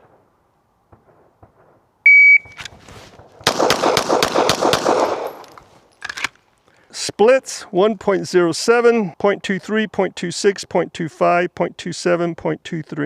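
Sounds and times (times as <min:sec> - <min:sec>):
shot timer beep: 0:02.1 - 0:02.6
pistol shots in quick string: 0:03.4 - 0:05.4.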